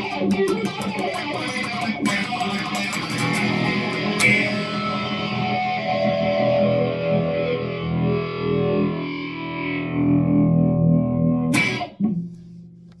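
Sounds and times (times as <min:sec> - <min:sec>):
distorted electric guitar: 0:00.0 - 0:13.0
sharp struck guitar attack: 0:02.1 - 0:07.3, 0:11.5 - 0:12.4.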